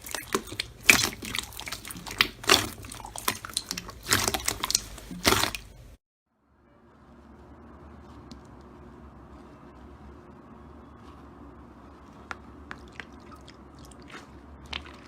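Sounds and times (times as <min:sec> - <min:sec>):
slime squelching and popping: 0:00.0 - 0:05.9, 0:12.3 - 0:15.0.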